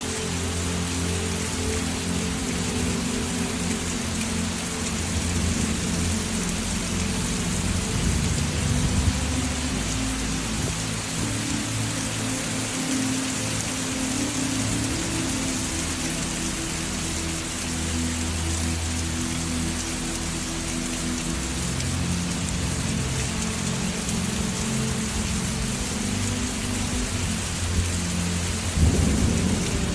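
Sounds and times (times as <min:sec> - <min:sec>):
low sustained musical tones: 0:00.0 - 0:29.9
steady rain falling: 0:00.0 - 0:29.9
thunder rumbling: 0:28.7 - 0:29.9.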